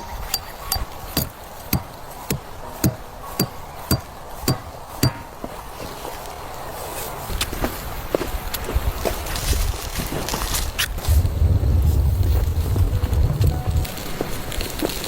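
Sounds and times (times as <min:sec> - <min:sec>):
tool striking hard surface: 0:00.0 - 0:05.5.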